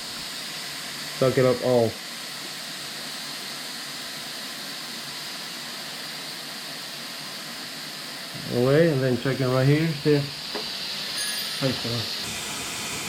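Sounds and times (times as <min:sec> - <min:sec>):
vacuum brake bleeder hissing: 0:00.0 - 0:13.0.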